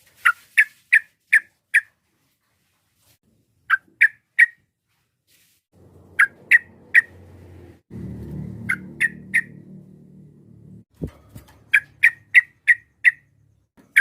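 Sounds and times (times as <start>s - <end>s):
bird giving sharp calls: 6.2s - 7.2s, 8.6s - 9.6s.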